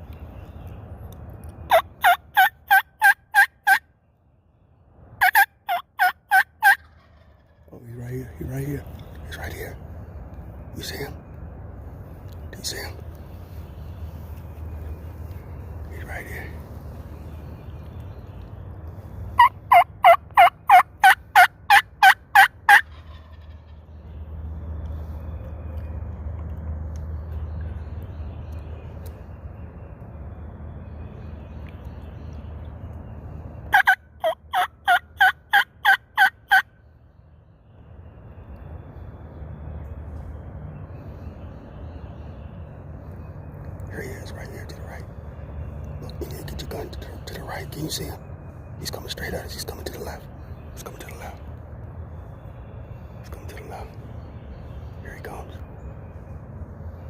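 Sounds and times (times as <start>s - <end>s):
turkey call yelps: 1.7s - 3.8s, 5.2s - 7.6s, 19.4s - 23.6s, 33.7s - 36.7s.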